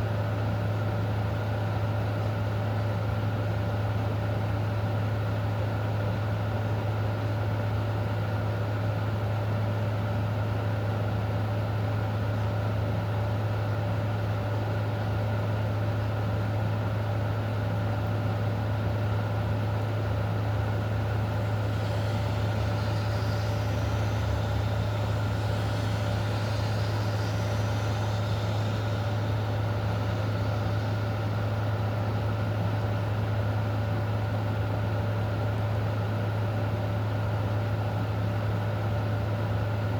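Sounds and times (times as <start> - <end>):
low mechanical hum: 0.0 - 39.9
even hiss: 21.2 - 31.5.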